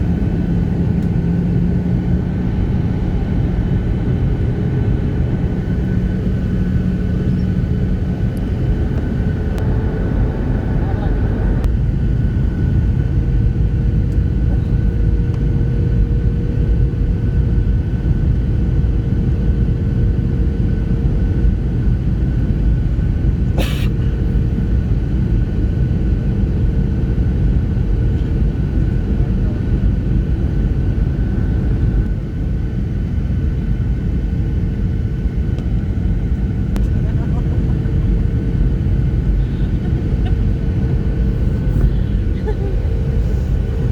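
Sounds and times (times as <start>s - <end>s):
steady hum: 0.0s - 15.8s, 33.0s - 43.9s
airliner cabin rumble: 0.0s - 43.9s.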